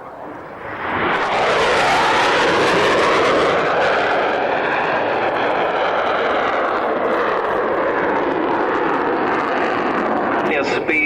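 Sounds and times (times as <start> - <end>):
jet fighter passing low: 0.0 - 11.0.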